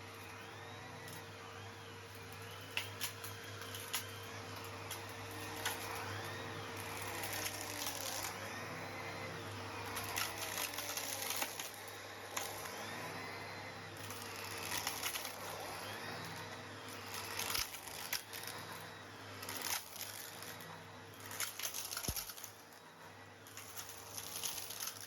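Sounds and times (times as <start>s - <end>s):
vacuum cleaner humming: 0.0s - 25.0s
stones clinking in vacuum hose: 2.4s - 8.4s, 9.9s - 12.9s, 14.0s - 16.3s, 17.0s - 18.6s, 19.4s - 20.6s, 21.2s - 22.6s, 23.5s - 25.0s.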